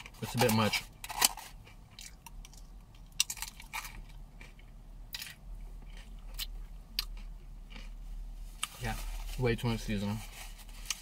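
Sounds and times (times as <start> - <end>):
person crunching potato chip: 0.3 - 8.0.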